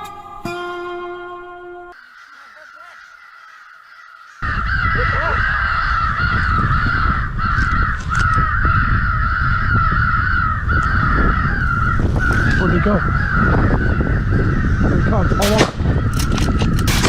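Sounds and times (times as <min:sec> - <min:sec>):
crows cawing: 0:01.9 - 0:17.0
wind rumbling on microphone: 0:04.4 - 0:17.0.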